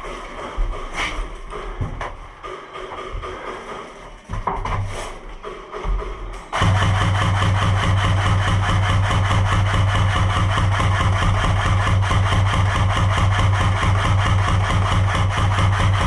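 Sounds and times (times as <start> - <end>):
machine humming with fast pulse: 5.2 - 16.0.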